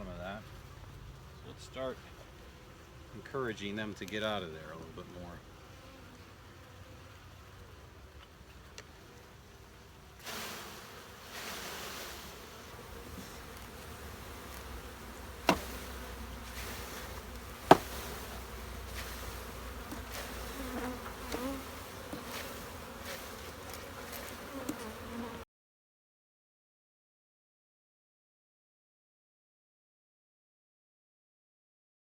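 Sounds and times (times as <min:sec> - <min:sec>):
bees buzzing: 0:00.0 - 0:25.4
sharp knocks: 0:15.4 - 0:15.7, 0:17.6 - 0:18.0.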